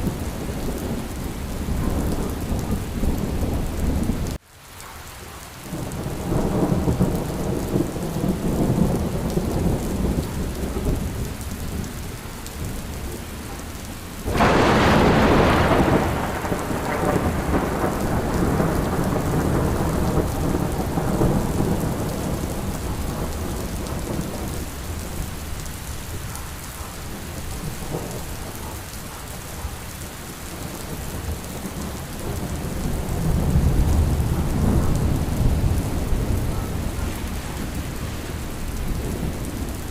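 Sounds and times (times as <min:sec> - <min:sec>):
thunder rumbling: 0:00.0 - 0:04.4, 0:05.7 - 0:39.9
steady rain: 0:00.0 - 0:39.9
loud sharp thunderclap: 0:14.3 - 0:24.5.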